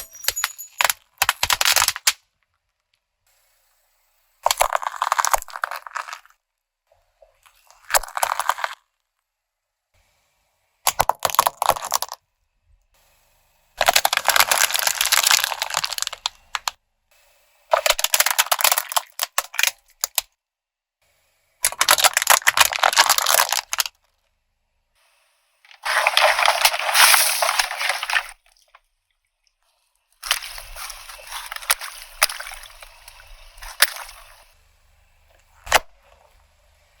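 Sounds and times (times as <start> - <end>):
tyre crushing crunching objects: 25.7 - 28.4, 30.2 - 34.5.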